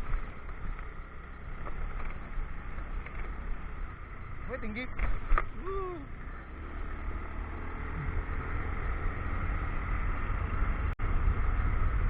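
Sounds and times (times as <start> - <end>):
motorcycle engine rumble: 0.0 - 12.0.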